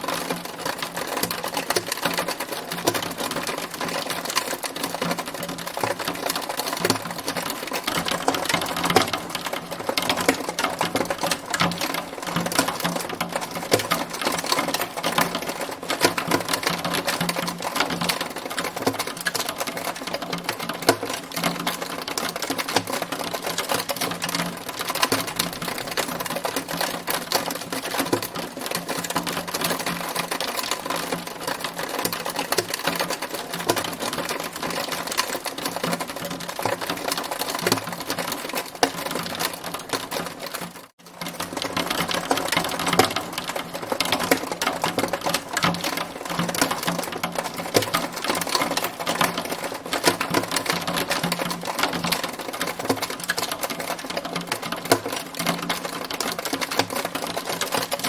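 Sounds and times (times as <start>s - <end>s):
hail clattering: 0.0s - 58.0s.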